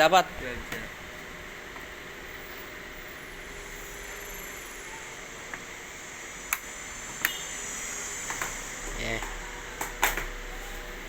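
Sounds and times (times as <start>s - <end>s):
equipment humming: 0.0s - 11.0s.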